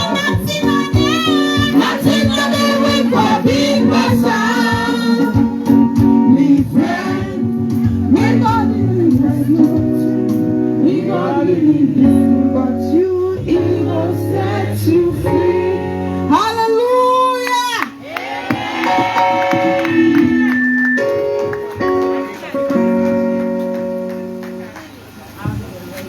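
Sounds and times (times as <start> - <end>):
guitar chords: 0.0 - 16.4, 18.5 - 25.0
worship singing: 0.0 - 16.8.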